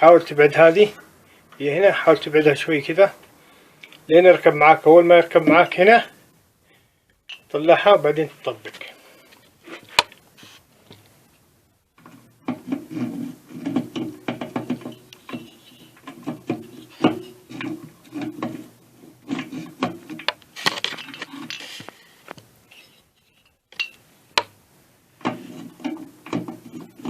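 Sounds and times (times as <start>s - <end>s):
metal rubbing and scraping: 12.0s - 21.9s, 22.6s - 24.0s, 25.2s - 27.0s.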